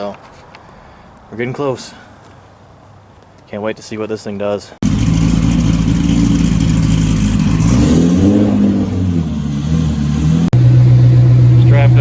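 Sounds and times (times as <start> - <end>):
truck engine running: 4.8 - 12.0.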